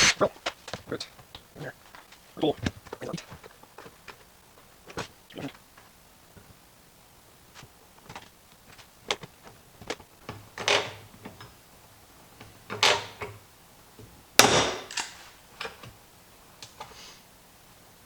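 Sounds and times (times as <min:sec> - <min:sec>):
sharp clicks and knocks: 0:07.6 - 0:11.6.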